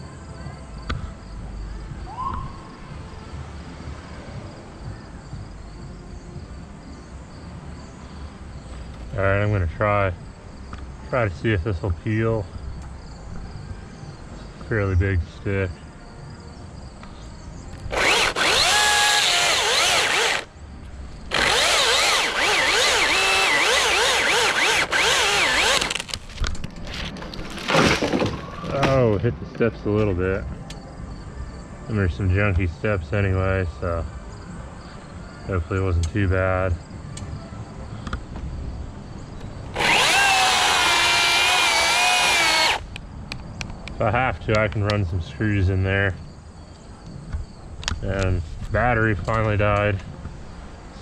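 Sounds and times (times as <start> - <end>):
chainsaw cutting wood: 17.9 - 20.5, 21.3 - 26.2, 39.7 - 42.9.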